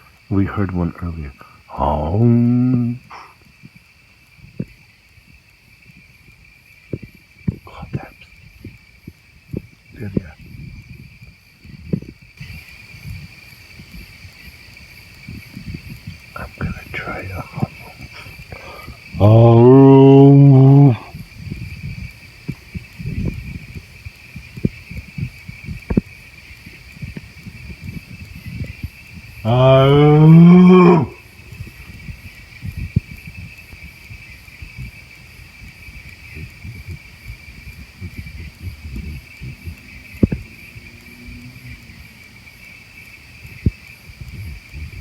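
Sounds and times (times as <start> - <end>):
night insects trilling: 0.0 - 45.0
man's hummed call: 1.7 - 3.3, 16.5 - 21.1, 29.4 - 31.2
faint clicks: 38.0 - 40.5.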